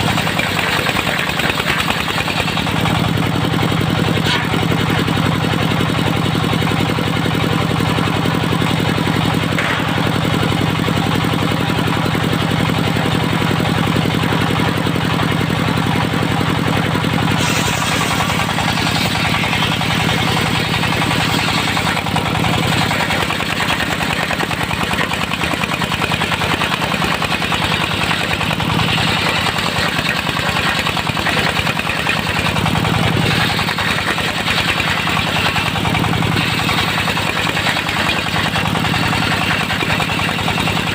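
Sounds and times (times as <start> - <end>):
sawmill engine running: 0.0 - 40.9
harsh bright sawing noise: 17.3 - 25.1.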